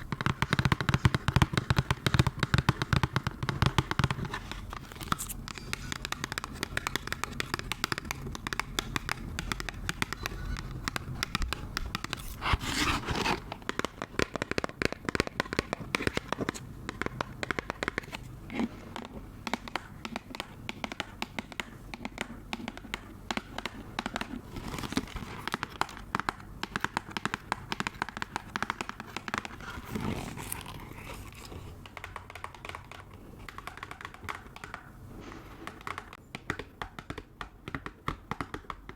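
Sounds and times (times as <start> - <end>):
crinkling and crackling by hand: 0.0 - 38.9.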